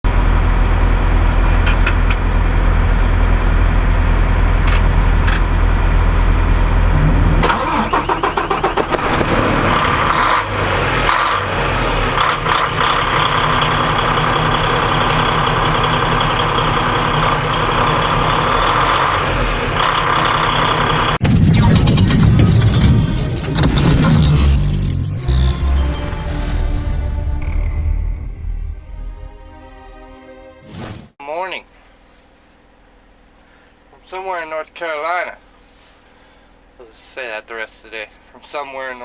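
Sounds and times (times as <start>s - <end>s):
truck engine rumbling: 0.1s - 30.2s.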